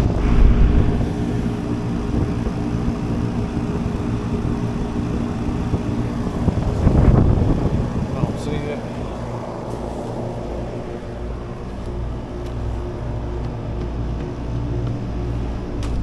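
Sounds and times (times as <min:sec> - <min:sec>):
louder rumble: 0:00.0 - 0:02.7
low mechanical machine hum: 0:00.0 - 0:16.0.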